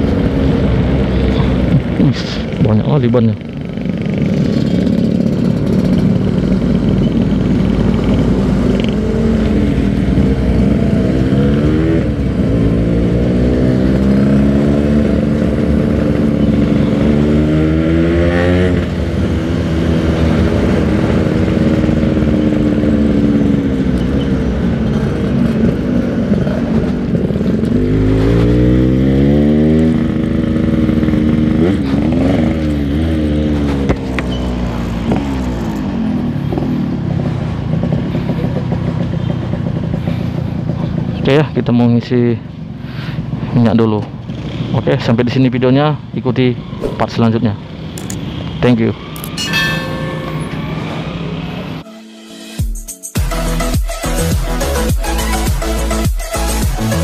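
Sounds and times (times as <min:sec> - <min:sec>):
two-stroke motorcycle engine accelerating: 0:00.0 - 0:41.7.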